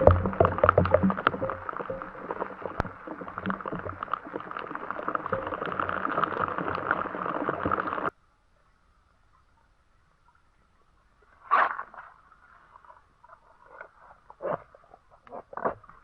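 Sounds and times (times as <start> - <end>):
rain pattering on shelter: 0.0 - 8.1.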